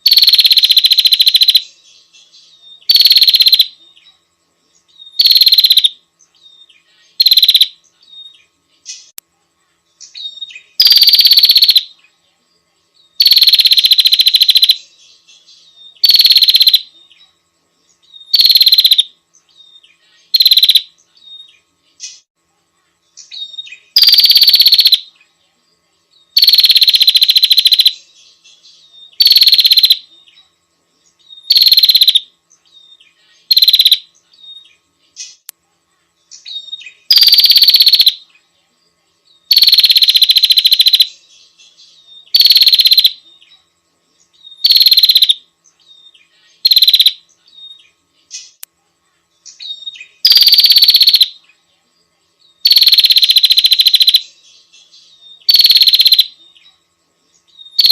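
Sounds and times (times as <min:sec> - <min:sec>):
bird rapid trill: 0:00.0 - 0:01.8, 0:02.8 - 0:03.8, 0:05.0 - 0:06.0, 0:07.1 - 0:07.8, 0:10.1 - 0:12.0, 0:13.2 - 0:14.9, 0:15.8 - 0:17.0, 0:18.2 - 0:19.1, 0:20.2 - 0:22.3, 0:23.2 - 0:25.1, 0:26.3 - 0:28.1, 0:29.0 - 0:30.1, 0:31.4 - 0:32.3, 0:32.9 - 0:34.6, 0:36.4 - 0:38.2, 0:39.5 - 0:43.2, 0:44.5 - 0:45.4, 0:46.6 - 0:47.3, 0:49.5 - 0:51.4, 0:52.6 - 0:54.4, 0:55.3 - 0:56.4, 0:57.6 - 0:57.9.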